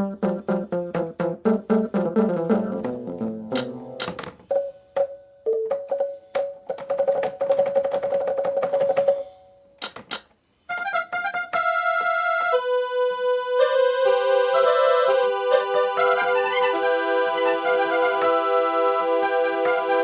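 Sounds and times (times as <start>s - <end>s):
sustained electronic notes: 0.0s - 4.8s.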